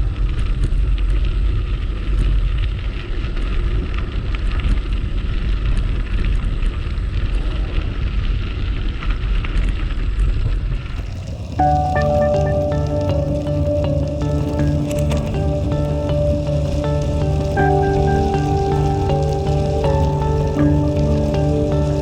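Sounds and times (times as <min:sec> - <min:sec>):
faint crackles: 0:10.8 - 0:22.0.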